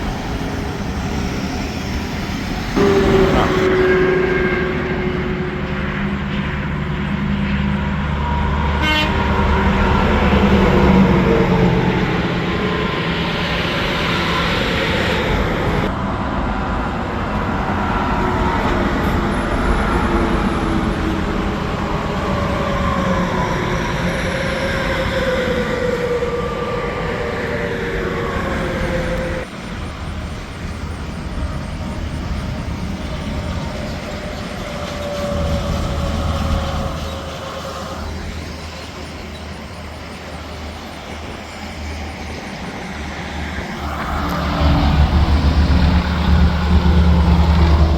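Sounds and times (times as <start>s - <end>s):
highway traffic passing: 0.0s - 19.0s, 28.2s - 47.9s
tyre whine: 2.6s - 3.7s.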